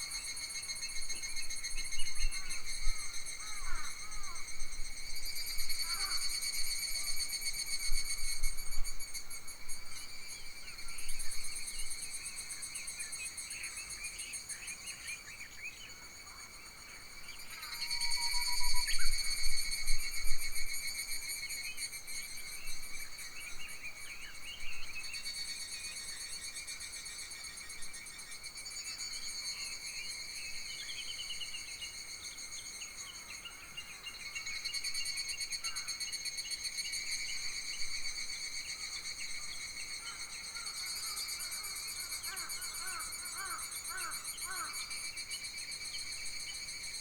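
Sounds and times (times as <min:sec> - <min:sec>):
insects trilling: 0:34.2 - 0:47.0.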